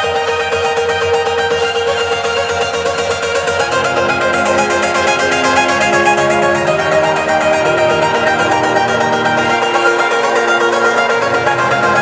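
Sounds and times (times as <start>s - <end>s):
plucked string instrument picking: 0.0s - 12.0s.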